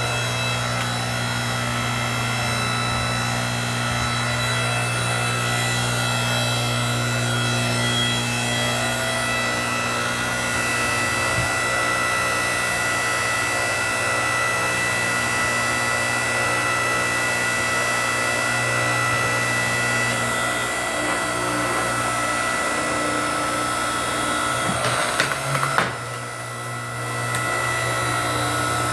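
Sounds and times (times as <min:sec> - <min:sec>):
hydraulic pump humming: 0:00.0 - 0:28.9.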